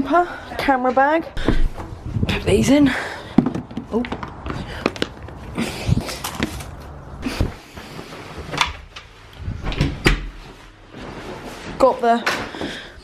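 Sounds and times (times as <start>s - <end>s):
objects knocking and thumping: 3.4s - 7.7s.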